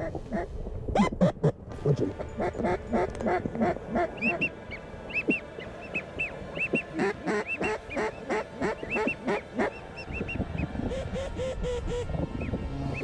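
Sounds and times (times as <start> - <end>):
quack call: 2.2 - 10.4.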